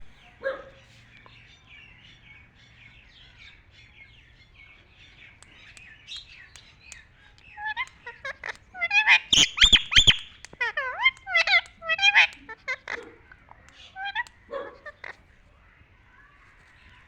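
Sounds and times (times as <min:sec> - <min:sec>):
parrot chirping and calling: 0:05.6 - 0:15.3.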